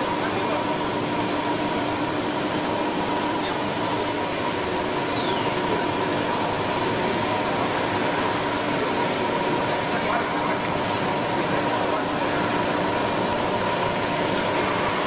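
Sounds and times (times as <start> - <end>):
stone router whirring: 0.0 - 6.4
high machine whine: 0.0 - 15.0
steady machine hums: 0.0 - 15.0.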